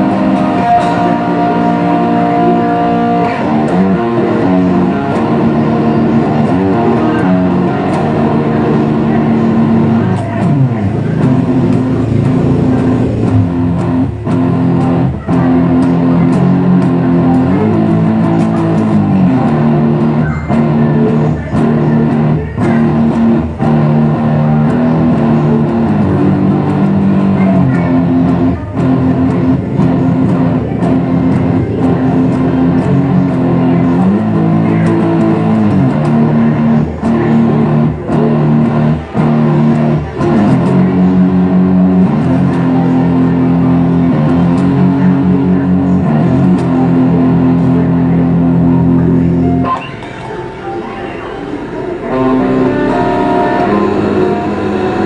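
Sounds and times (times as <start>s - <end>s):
guitar and bass music: 0.0s - 55.0s.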